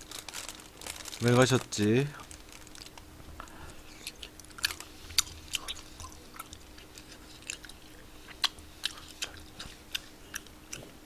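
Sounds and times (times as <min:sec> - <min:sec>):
faint steady hum: 0:00.0 - 0:11.0
person chewing: 0:02.2 - 0:11.0.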